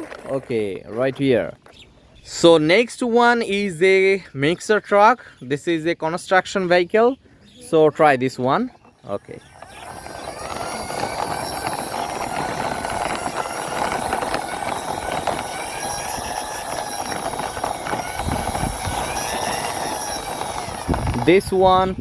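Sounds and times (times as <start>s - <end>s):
plastic toy wheels rattling on concrete: 0.0s - 1.8s, 8.5s - 22.0s.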